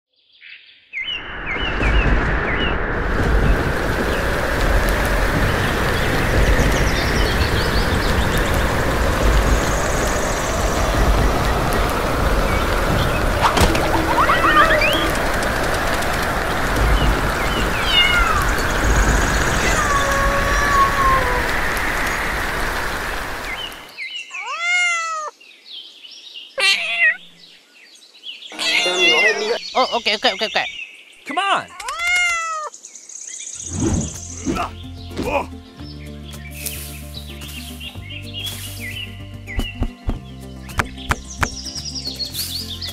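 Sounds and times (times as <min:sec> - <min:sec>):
wind and rain roaring: 0:00.9 - 0:30.4
deep rumble: 0:01.1 - 0:23.9
cat meowing: 0:17.8 - 0:18.5, 0:19.5 - 0:21.5, 0:24.3 - 0:25.3, 0:26.6 - 0:27.4, 0:28.5 - 0:29.6, 0:31.7 - 0:32.7.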